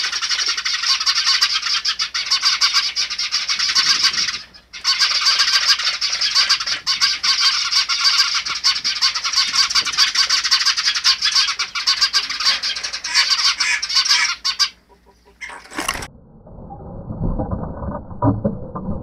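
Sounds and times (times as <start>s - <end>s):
birds chattering: 0.0s - 16.1s
muffled wing fluttering: 3.5s - 7.4s, 15.4s - 16.1s.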